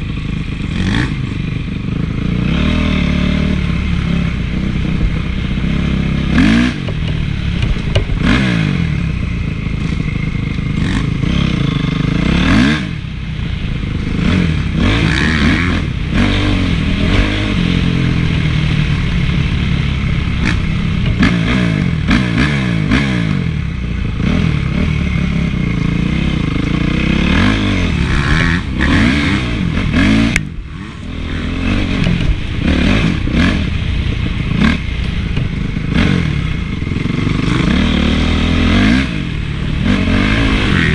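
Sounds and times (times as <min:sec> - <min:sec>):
motorbike engine revving: 0:00.0 - 0:40.9
motorbike clatter: 0:03.6 - 0:12.7, 0:13.9 - 0:23.4, 0:24.0 - 0:40.9.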